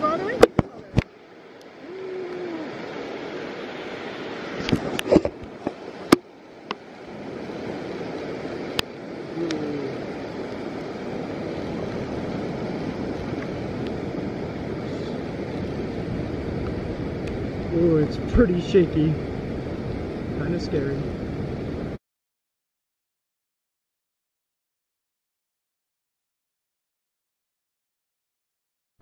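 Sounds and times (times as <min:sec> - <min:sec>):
water rushing: 0:00.0 - 0:22.0
wind rushing: 0:06.9 - 0:22.0.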